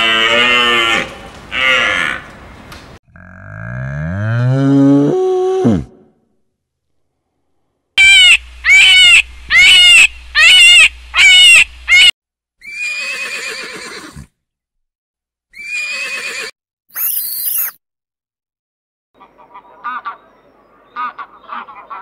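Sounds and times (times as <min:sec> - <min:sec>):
horses whinnying: 0:12.6 - 0:14.3, 0:15.6 - 0:16.5.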